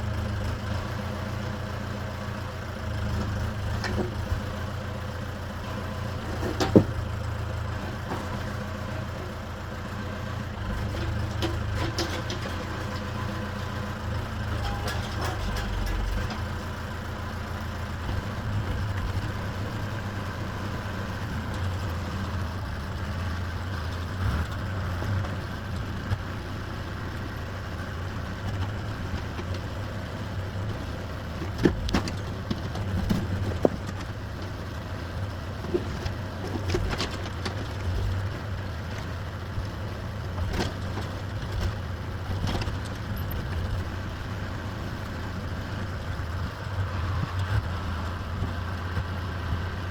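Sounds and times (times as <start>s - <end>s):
excavator engine running: 0.0s - 49.9s.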